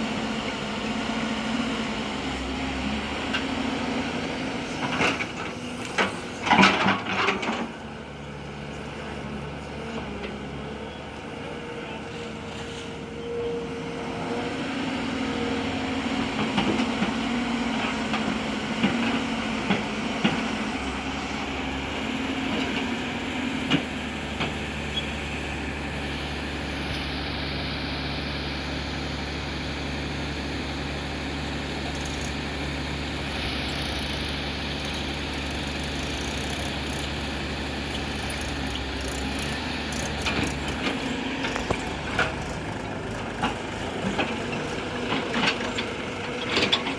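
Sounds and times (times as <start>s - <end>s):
deep engine drone: 0.0s - 46.9s
diesel engines running: 0.0s - 46.9s.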